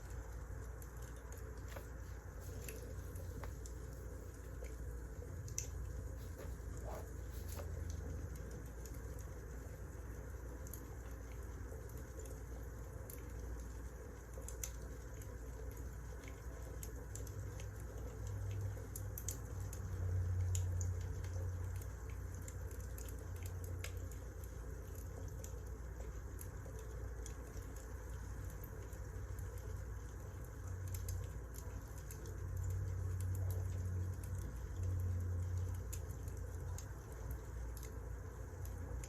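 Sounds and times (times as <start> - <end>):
wood fire crackling: 0.0 - 18.1.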